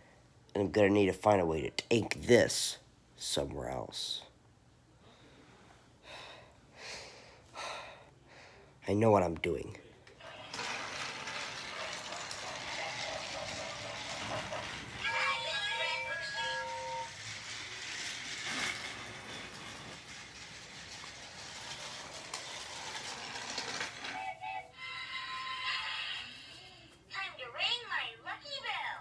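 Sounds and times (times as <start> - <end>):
toy train motor whirring: 10.2 - 27.0.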